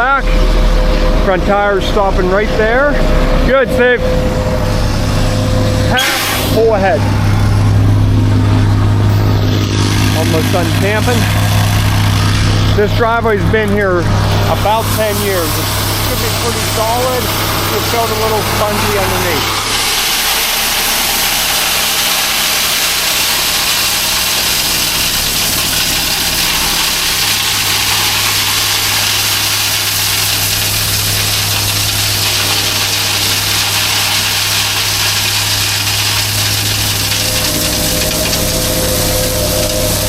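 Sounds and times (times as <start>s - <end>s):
high steady whine: 0.0s - 40.0s
plate compactor engine running: 0.0s - 40.0s
loud hiss: 4.7s - 7.3s, 13.8s - 40.0s.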